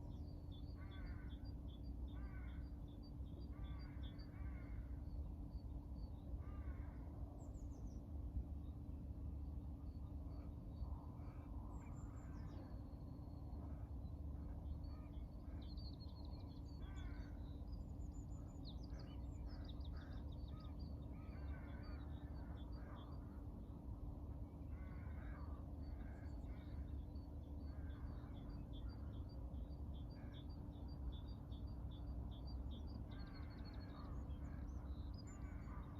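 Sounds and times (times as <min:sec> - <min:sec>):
low background rumble: 0:00.0 - 0:35.9
birds chirping and trilling: 0:14.4 - 0:23.5, 0:24.6 - 0:35.9.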